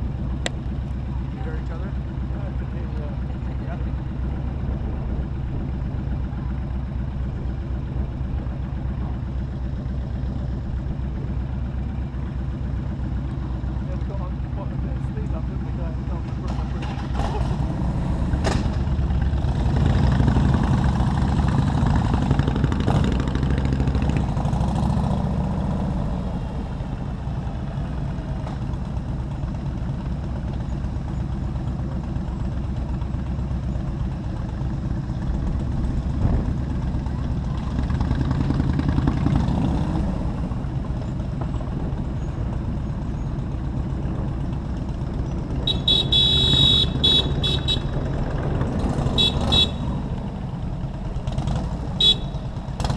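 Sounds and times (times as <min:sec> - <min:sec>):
motorcycle engine running: 0:00.0 - 0:52.9
vehicle horn blasts: 0:45.6 - 0:48.0, 0:49.1 - 0:50.0, 0:52.0 - 0:52.6.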